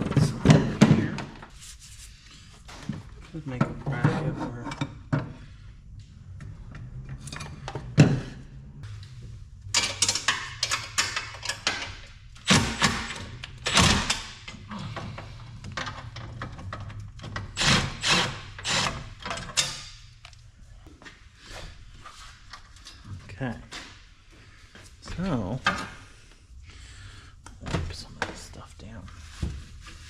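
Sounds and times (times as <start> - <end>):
parts knocking and clunking: 0.0 - 1.5, 2.7 - 5.6, 6.3 - 8.4, 9.6 - 20.4
scraping and rubbing: 1.5 - 2.5.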